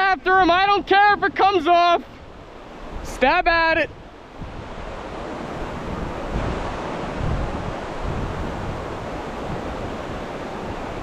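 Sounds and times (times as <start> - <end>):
river water rushing: 0.0 - 11.0
wind buffeting microphone: 0.0 - 11.0.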